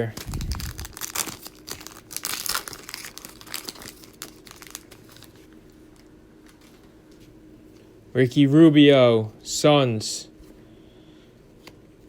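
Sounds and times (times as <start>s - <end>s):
wrapper being torn and crinkled: 0.0s - 5.6s.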